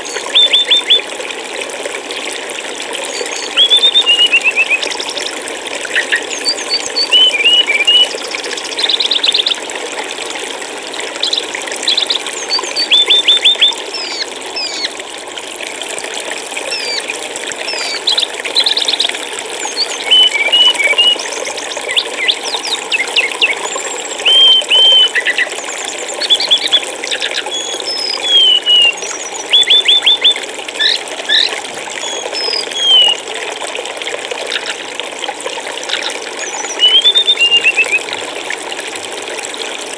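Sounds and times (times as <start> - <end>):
running water: 0.0 - 39.9
songbirds chirping: 19.7 - 33.2.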